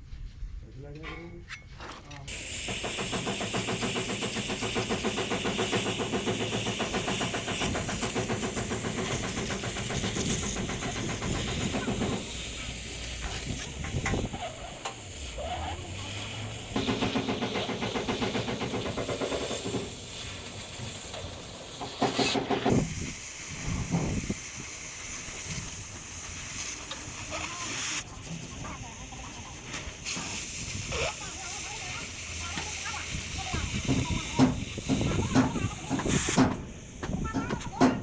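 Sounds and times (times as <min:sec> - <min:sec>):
engine running with hiss: 0:02.3 - 0:37.8.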